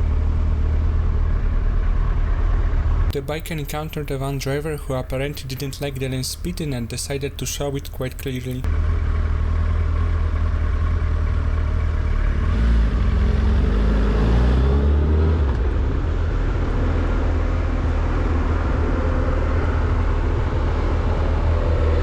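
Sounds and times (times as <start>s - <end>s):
motorcycle engine: 0.0s - 3.1s, 8.6s - 22.0s.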